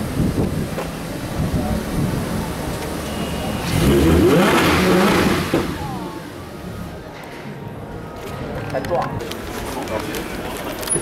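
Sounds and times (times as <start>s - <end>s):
rumbling wind: 0.0s - 2.9s
street noise: 0.0s - 11.0s
car engine accelerating: 0.6s - 7.0s.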